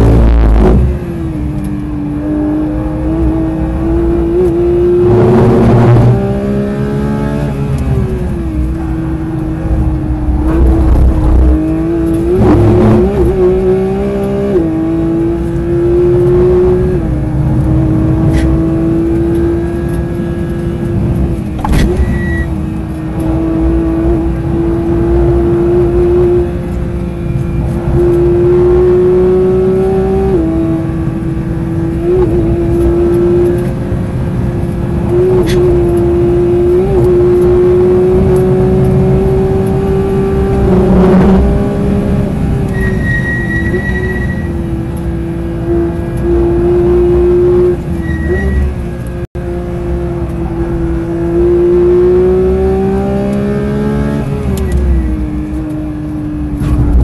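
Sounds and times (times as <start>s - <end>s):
car engine at high revs: 0.0s - 57.0s
tyre and road noise: 0.0s - 57.0s
loud rumble: 8.6s - 13.2s, 39.9s - 43.0s, 56.5s - 57.0s.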